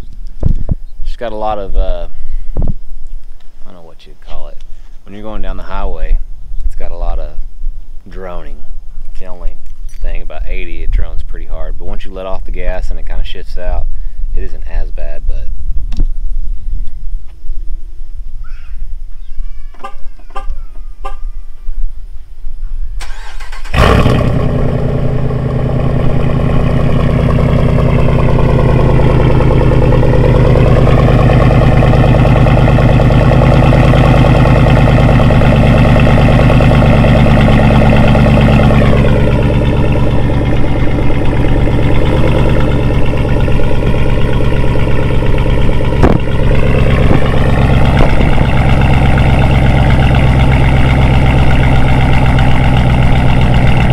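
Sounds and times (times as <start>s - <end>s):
car engine starting and idling: 23.0s - 53.9s.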